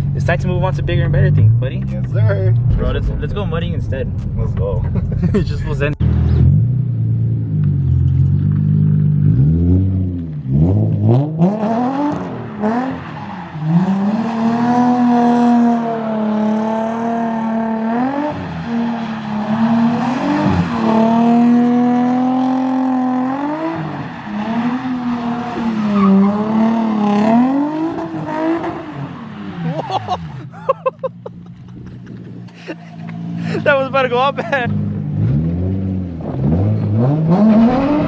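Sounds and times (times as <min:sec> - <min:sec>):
car engine revving hard: 0:09.2 - 0:29.8, 0:33.2 - 0:38.0.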